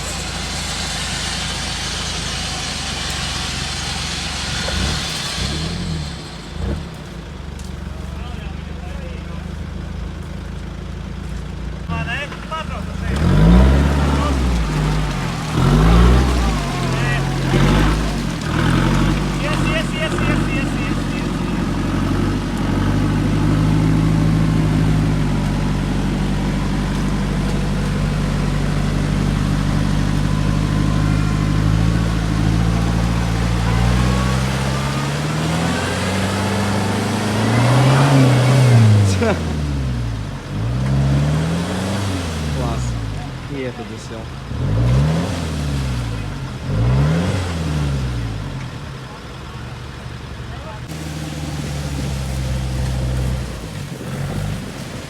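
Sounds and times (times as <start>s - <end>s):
steady hiss: 0.0s - 7.9s
engine running under load: 0.0s - 55.0s.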